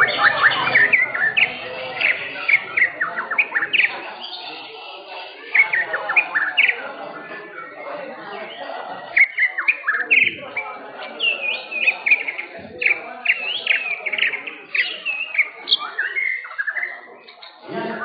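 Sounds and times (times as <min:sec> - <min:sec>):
bird singing whistled notes: 0:00.0 - 0:04.7, 0:08.5 - 0:17.6
low background murmur: 0:00.0 - 0:18.0.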